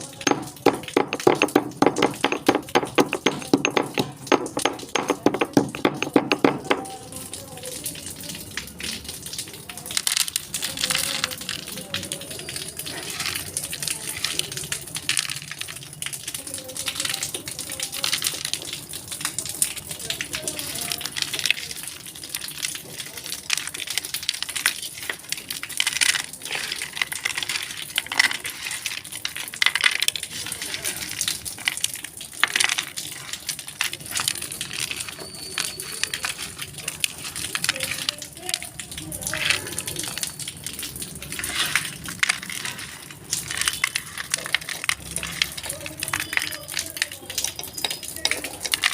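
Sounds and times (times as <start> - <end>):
crunching of chewed pencils: 21.0 - 48.9.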